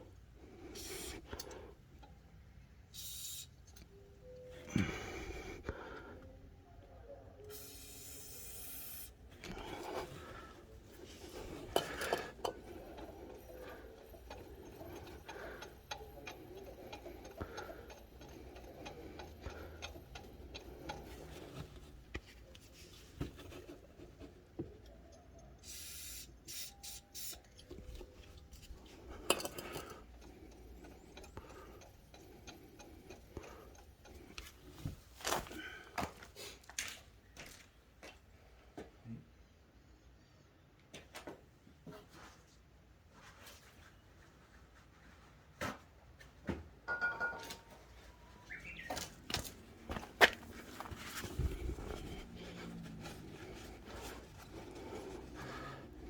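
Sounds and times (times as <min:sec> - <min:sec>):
metal tool clicks and clinks: 0:29.2 - 0:30.0.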